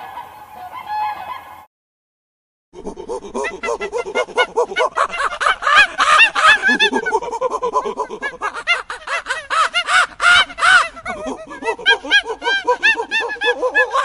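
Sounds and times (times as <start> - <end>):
flock of birds calling: 0.0 - 1.6, 8.6 - 14.0.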